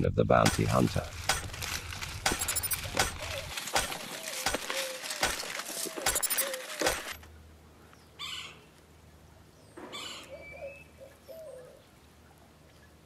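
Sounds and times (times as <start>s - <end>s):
bird calling softly: 2.4s - 6.9s, 9.5s - 13.0s.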